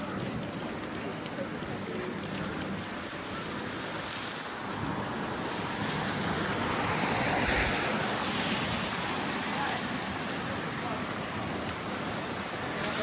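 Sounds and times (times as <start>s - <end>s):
tyres hissing through slush: 4.3s - 13.0s.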